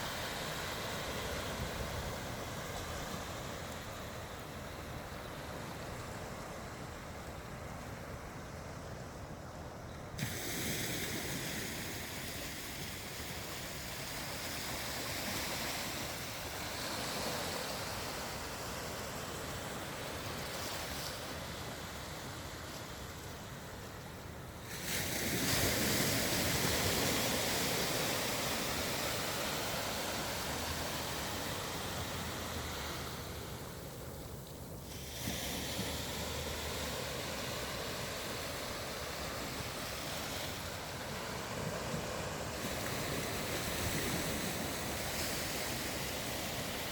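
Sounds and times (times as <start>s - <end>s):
ocean waves breaking: 10.1s - 46.9s.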